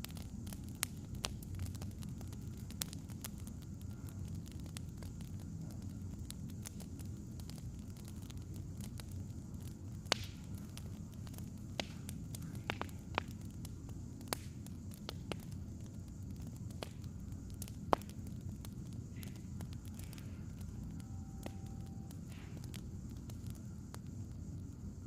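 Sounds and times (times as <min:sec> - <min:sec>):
steady low rumble: 0:00.0 - 0:25.0
wood fire crackling: 0:00.0 - 0:25.0.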